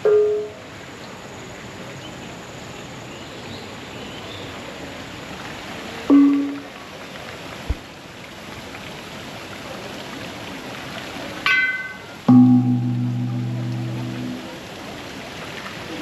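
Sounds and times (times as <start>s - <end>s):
falling water rushing: 4.6s - 16.0s
deep resonant bell tone: 11.5s - 14.5s
chime-like music tones: 11.6s - 14.5s.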